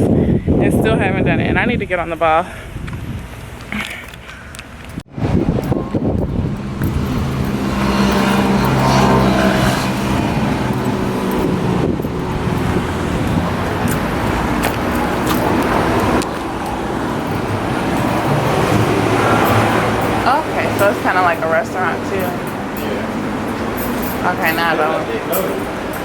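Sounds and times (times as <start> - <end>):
road noise: 0.0 - 26.0
car engine running: 5.1 - 26.0.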